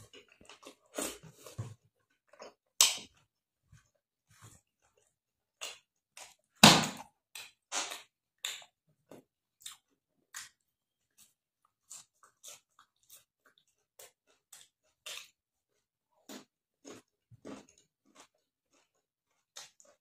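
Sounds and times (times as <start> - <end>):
wet crunchy chewing: 9.6 - 20.0.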